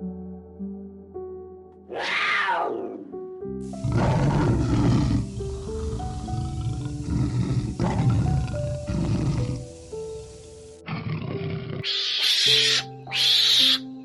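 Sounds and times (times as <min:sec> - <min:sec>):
soft piano music: 0:00.0 - 0:14.0
deep rough roar-like calls: 0:03.8 - 0:09.6
animal call falling in pitch: 0:11.9 - 0:13.8.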